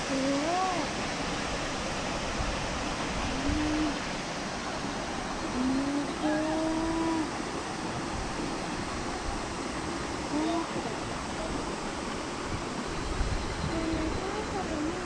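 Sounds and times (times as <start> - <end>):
person's voice: 0.0 - 0.9, 3.4 - 4.0, 5.5 - 7.3, 10.3 - 11.0, 13.7 - 15.0
stream water rushing: 0.0 - 15.0.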